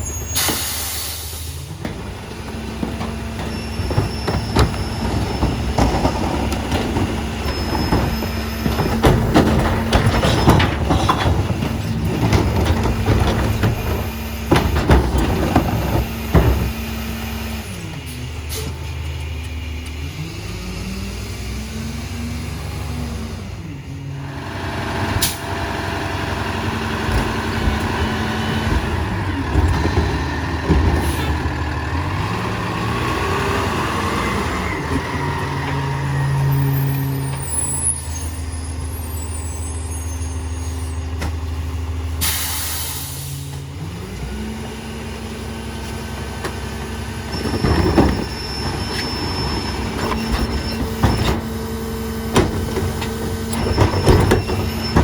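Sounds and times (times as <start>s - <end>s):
diesel truck engine running: 0.0s - 55.0s
air brake hiss: 0.4s - 1.7s, 42.2s - 43.6s
metal clanks: 2.8s - 16.9s.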